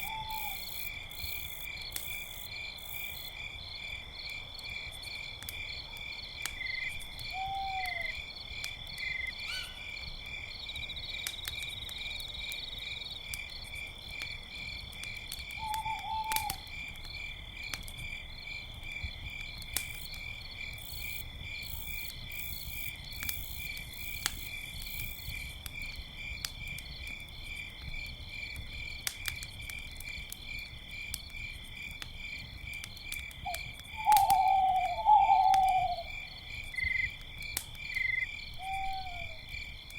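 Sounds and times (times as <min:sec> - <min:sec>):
campfire crackling: 0:00.0 - 0:39.9
crickets chirping: 0:00.0 - 0:39.9
owl hooting: 0:00.1 - 0:00.6, 0:07.3 - 0:08.2, 0:09.5 - 0:09.8, 0:15.6 - 0:16.6, 0:34.0 - 0:36.1, 0:38.6 - 0:39.4.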